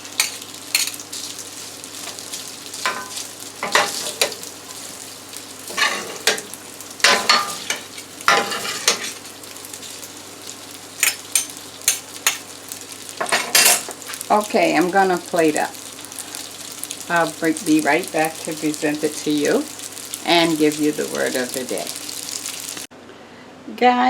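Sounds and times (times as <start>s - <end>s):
pasta sizzling: 0.0s - 22.9s
utensil scraping a pan: 2.0s - 5.0s, 5.6s - 9.3s.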